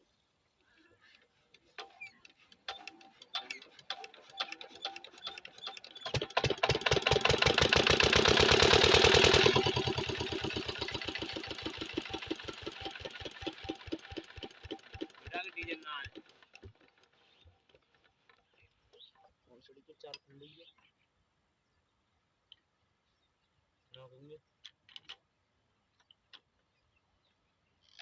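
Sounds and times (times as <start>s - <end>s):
slow clicks of engine turning over: 1.5s - 19.3s
diesel engine starting and running: 2.6s - 17.8s.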